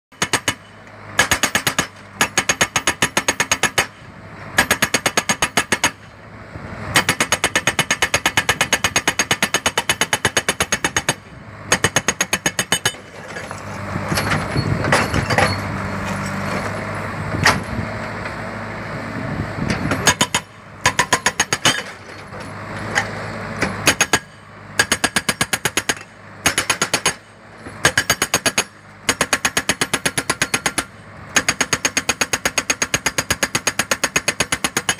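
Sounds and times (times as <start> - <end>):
hydraulic breaker hammering: 0.1 - 4.0, 4.6 - 6.1, 6.9 - 13.4, 19.8 - 22.2, 23.6 - 34.9
diesel engine running: 0.1 - 34.9.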